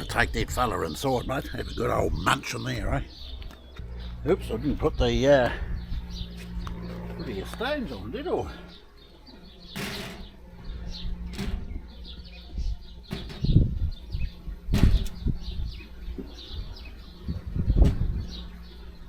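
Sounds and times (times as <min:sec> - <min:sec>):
small birds chirping: 0:00.0 - 0:19.0
dull thumps and knocks: 0:13.0 - 0:13.8, 0:14.7 - 0:15.3.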